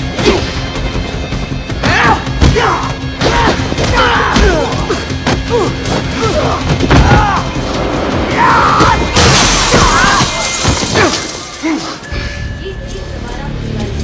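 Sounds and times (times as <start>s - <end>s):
dramatic action music: 0.0s - 14.0s
men grunting and crying out: 1.7s - 12.0s
punches and body impacts: 1.8s - 7.4s.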